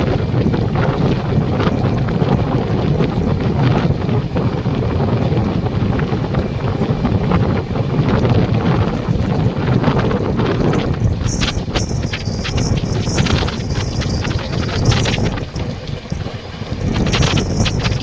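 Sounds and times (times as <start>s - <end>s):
train rumbling: 0.0s - 18.0s
wind buffeting microphone: 0.0s - 18.0s
sharp train clacks: 8.8s - 16.2s.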